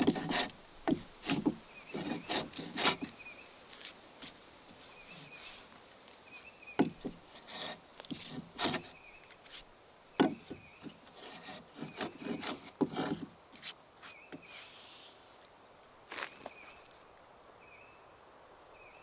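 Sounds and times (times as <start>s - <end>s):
rubbing and scraping on timber: 0.0s - 15.3s
sharp knocks on wood: 10.2s - 10.7s.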